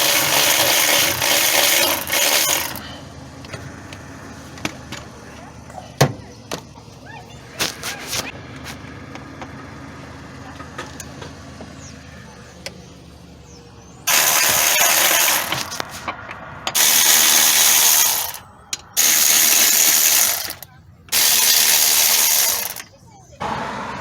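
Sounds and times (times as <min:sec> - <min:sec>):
compressed air bursts: 0:16.8 - 0:18.4.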